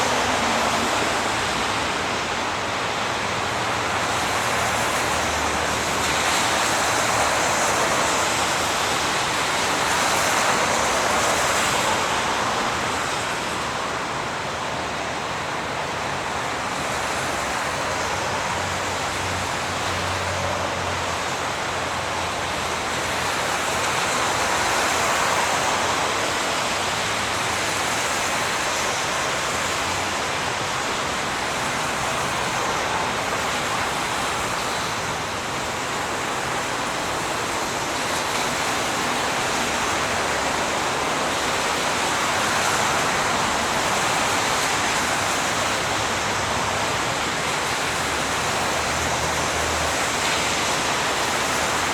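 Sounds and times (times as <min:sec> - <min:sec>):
highway traffic roar: 0:00.0 - 0:51.9.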